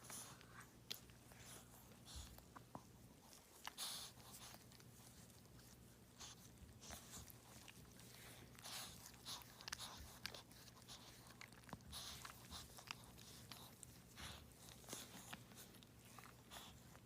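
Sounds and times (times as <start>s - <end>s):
dog licking and chewing: 0.0s - 17.0s
faint steady hum: 0.0s - 17.0s.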